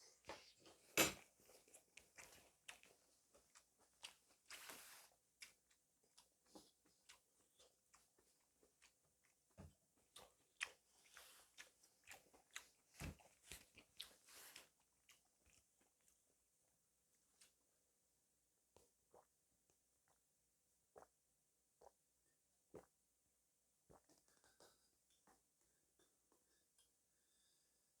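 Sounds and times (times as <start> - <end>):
soft chewing: 0.0 - 16.6, 23.9 - 27.6.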